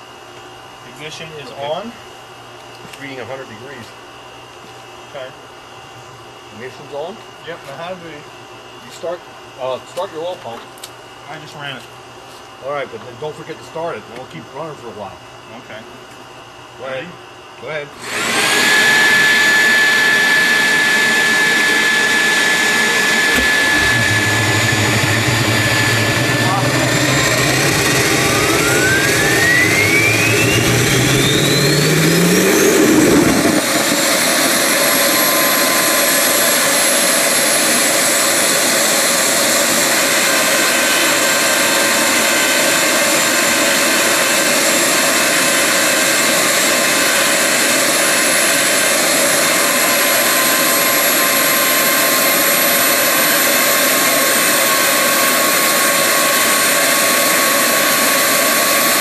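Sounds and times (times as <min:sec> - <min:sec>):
jet engine whine: 0:12.7 - 0:59.0
jet engine rush: 0:18.0 - 0:59.0
low hum: 0:19.3 - 0:37.6.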